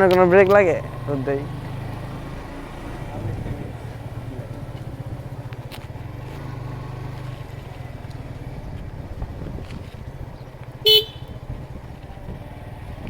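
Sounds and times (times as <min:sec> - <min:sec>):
motorcycle engine rumbling: 0:00.0 - 0:13.0
horn beep: 0:10.8 - 0:11.4.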